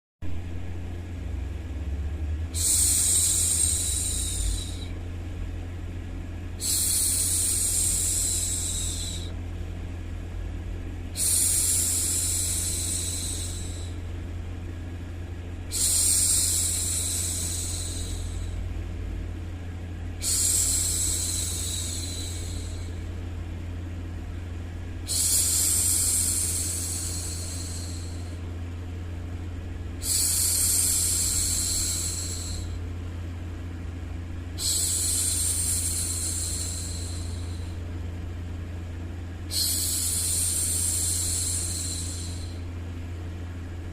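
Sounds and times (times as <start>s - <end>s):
low white-noise hum: 0.2s - 43.9s
woman hushing shhh: 2.5s - 5.0s, 6.6s - 9.4s, 11.1s - 14.1s, 15.7s - 18.7s, 20.2s - 23.1s, 25.0s - 28.5s, 30.0s - 32.9s, 34.6s - 37.9s, 39.5s - 42.8s.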